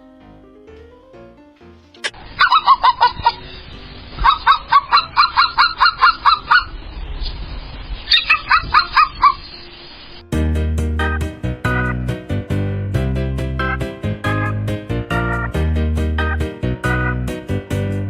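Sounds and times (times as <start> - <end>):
music: 0.0 - 2.2, 2.9 - 5.6, 9.6 - 18.0
bird calling: 2.2 - 6.8, 8.1 - 9.7.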